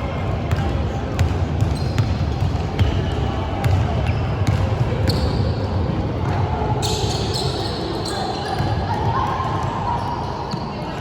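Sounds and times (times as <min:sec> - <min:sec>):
basketball bouncing on court: 0:00.1 - 0:05.4
shoe squeaks: 0:01.7 - 0:02.1, 0:05.0 - 0:05.6, 0:06.8 - 0:08.9.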